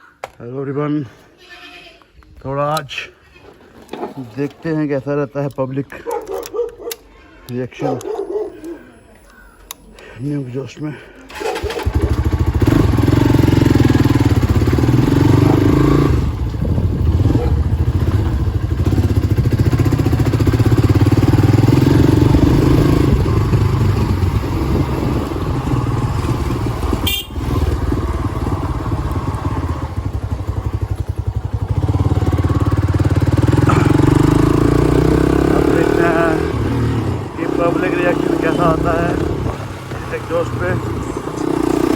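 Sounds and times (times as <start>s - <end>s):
loud motorcycle engine running: 11.6s - 41.9s.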